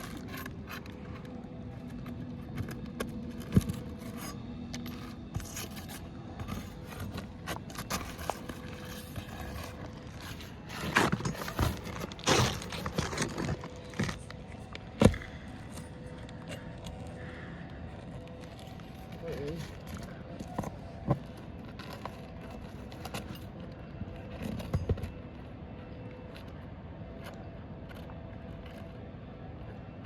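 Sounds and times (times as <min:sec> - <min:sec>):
scraping roof shingles: 0:07.0 - 0:15.2.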